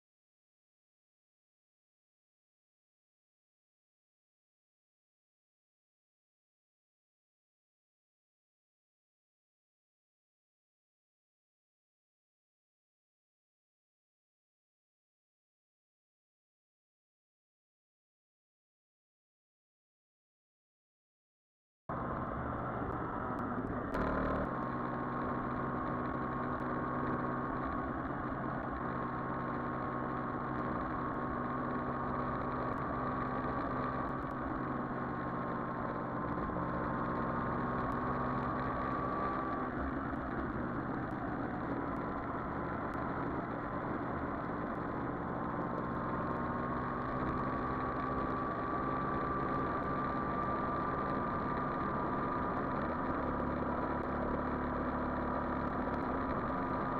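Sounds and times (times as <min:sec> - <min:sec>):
motorcycle engine running: 0:21.9 - 0:56.9.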